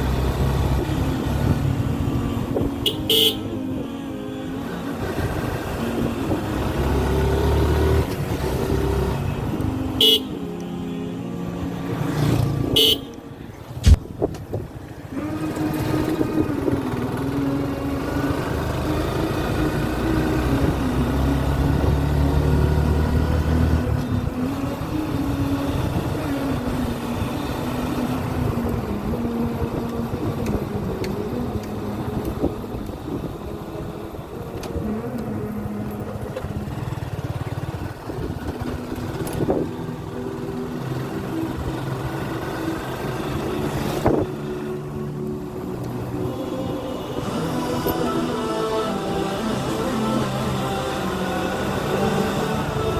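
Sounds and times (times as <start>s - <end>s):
horn toots: 2.7s - 3.7s, 9.5s - 10.7s, 12.1s - 14.1s
motorcycle engine running: 12.0s - 48.1s.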